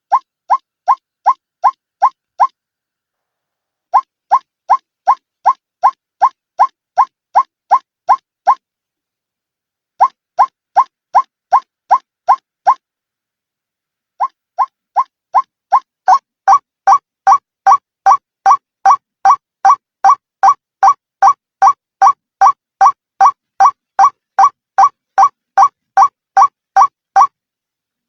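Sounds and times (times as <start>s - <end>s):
waterhen calling short notes: 20.4s - 27.3s.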